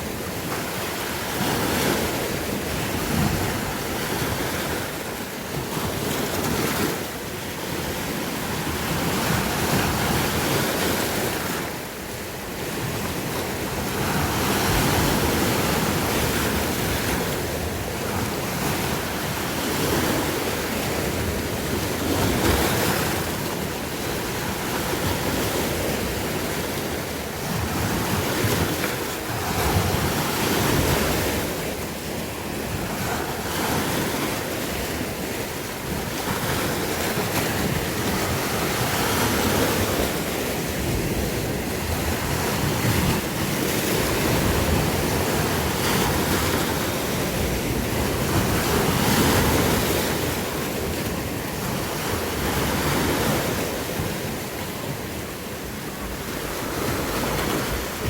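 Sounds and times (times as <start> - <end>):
sea waves breaking on shore: 0.0 - 58.0.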